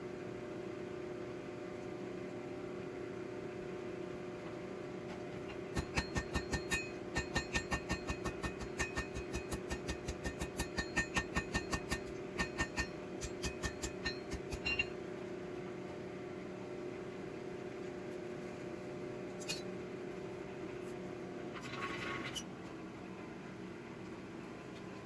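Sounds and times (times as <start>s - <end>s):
steady hum: 2.4s - 21.6s
hammer ringing on anvil: 5.8s - 15.0s.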